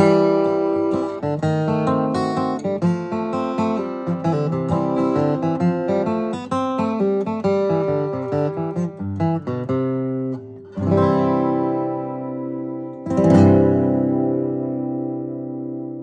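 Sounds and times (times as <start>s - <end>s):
acoustic guitar melody: 0.0s - 16.0s
guitar chord ringing: 7.7s - 16.0s.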